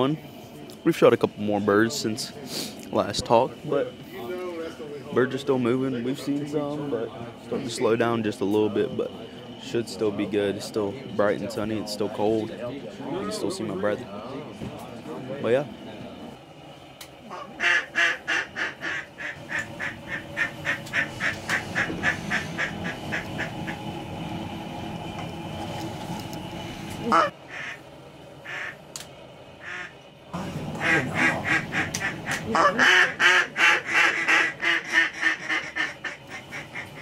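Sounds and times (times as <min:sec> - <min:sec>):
duck calls quacking: 0:17.3 - 0:23.8, 0:27.1 - 0:27.8, 0:28.4 - 0:28.8, 0:29.6 - 0:30.0, 0:30.8 - 0:37.0.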